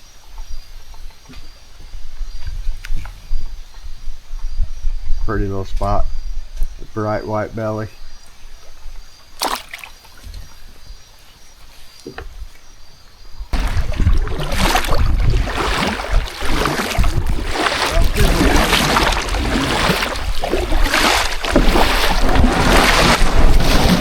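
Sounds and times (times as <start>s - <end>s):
wind buffeting microphone: 0.4s - 9.1s, 13.4s - 24.0s
kayak on water: 8.0s - 24.0s.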